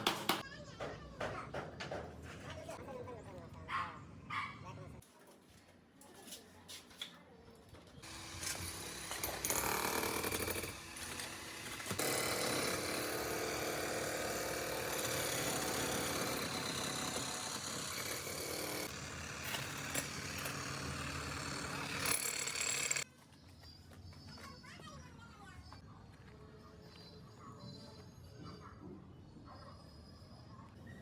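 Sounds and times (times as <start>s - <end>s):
construction machinery running: 8.0s - 23.0s.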